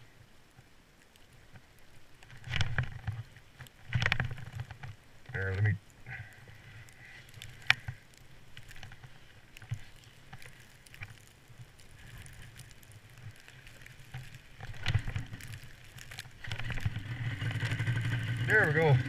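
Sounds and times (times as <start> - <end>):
wind: 0.0 - 19.0
snowmobile engine starting: 16.8 - 19.0.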